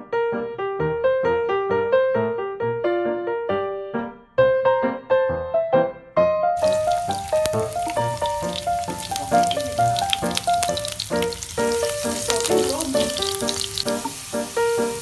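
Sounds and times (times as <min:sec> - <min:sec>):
garlic sizzling in hot oil: 0:06.6 - 0:15.0
oil crackling spatters: 0:06.6 - 0:15.0
ragtime piano music: 0:06.6 - 0:15.0.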